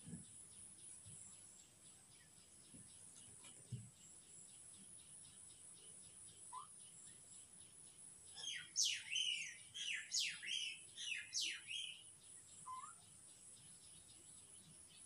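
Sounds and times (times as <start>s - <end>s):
faint high chirping: 0.0s - 15.0s
bird calling with falling notes: 12.7s - 13.0s.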